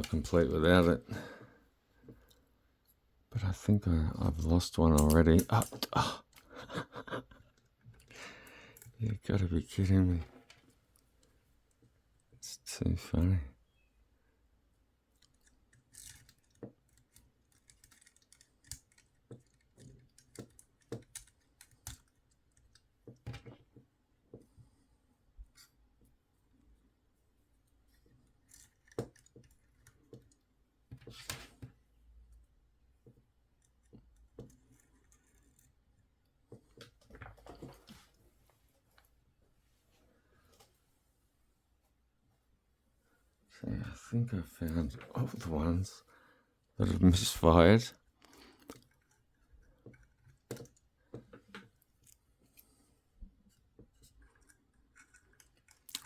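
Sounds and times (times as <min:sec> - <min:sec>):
plastic toy parts clicking: 0:05.0 - 0:06.5, 0:15.2 - 0:23.6, 0:28.3 - 0:30.4, 0:54.0 - 0:56.0.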